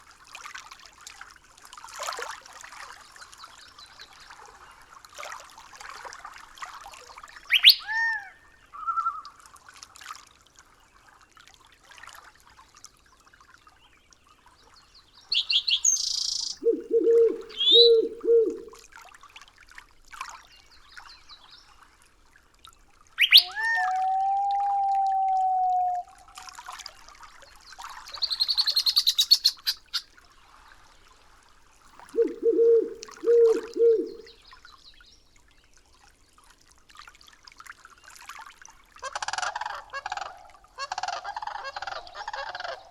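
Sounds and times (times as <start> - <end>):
quick high bird chirping: 7.5 - 7.9, 15.3 - 18.8, 23.2 - 23.6, 28.1 - 30.0
lower bird call: 7.5 - 9.3, 15.3 - 18.8, 23.2 - 26.5, 28.1 - 30.0, 32.1 - 34.4
whistled bird calls: 7.5 - 9.3, 15.3 - 18.8, 23.2 - 26.1, 28.1 - 30.0, 32.2 - 34.3
faint crackly hiss: 15.3 - 18.8.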